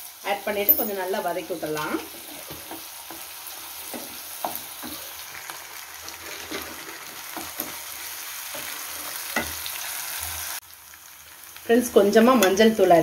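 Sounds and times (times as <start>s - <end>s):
food sizzling in hot oil: 0.0s - 13.0s
wooden spatula scraping pan: 1.7s - 5.2s, 6.0s - 7.9s, 8.5s - 9.6s.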